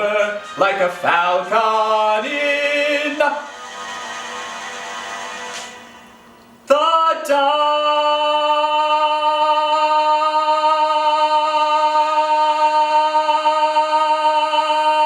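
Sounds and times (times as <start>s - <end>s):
man singing long held note: 0.0s - 3.6s, 6.7s - 15.0s.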